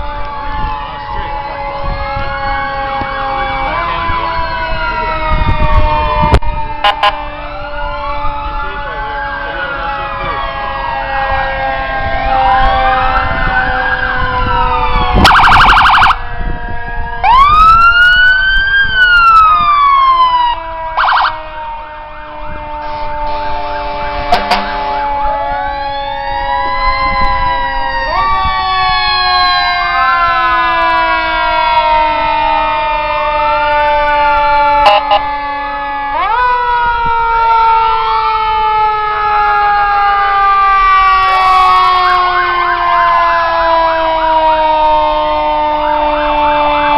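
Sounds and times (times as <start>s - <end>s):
fire truck sirens wailing: 0.0s - 46.9s
loud horn blasts: 5.8s - 7.3s, 22.8s - 25.4s, 34.8s - 35.3s.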